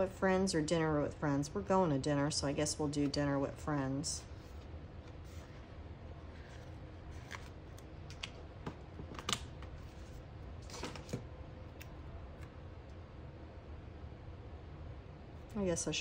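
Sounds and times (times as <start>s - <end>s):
steady low hum: 0.0s - 16.0s
paper rustling: 4.4s - 8.3s.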